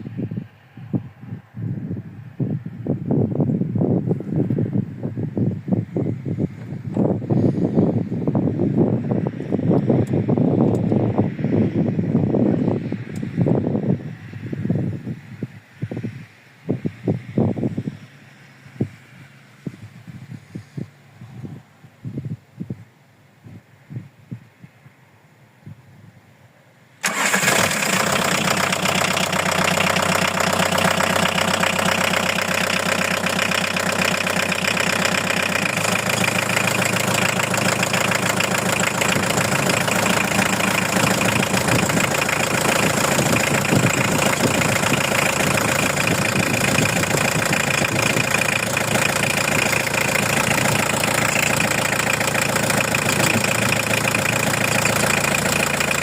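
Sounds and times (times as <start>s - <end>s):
van engine idling: 27.0s - 56.0s.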